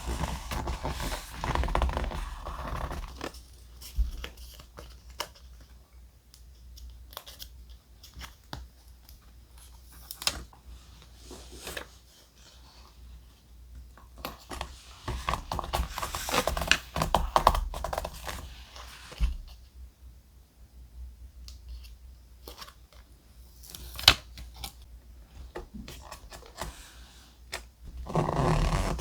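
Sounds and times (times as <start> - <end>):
paper rustling and crinkling: 0.0 - 5.8.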